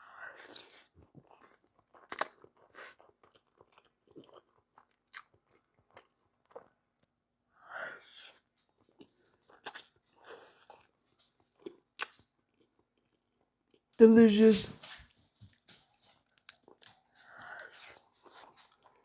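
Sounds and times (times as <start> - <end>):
wet chewing and mouth sounds: 0.1 - 7.2, 7.8 - 13.9, 15.1 - 19.0.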